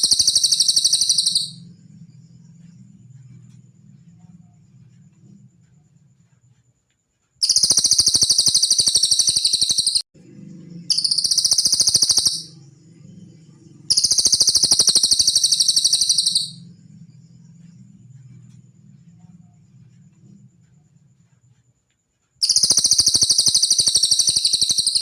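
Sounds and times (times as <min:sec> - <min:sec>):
bird high-pitched trills: 0:00.0 - 0:01.6, 0:07.4 - 0:10.0, 0:10.8 - 0:12.7, 0:13.8 - 0:16.7, 0:22.4 - 0:25.0.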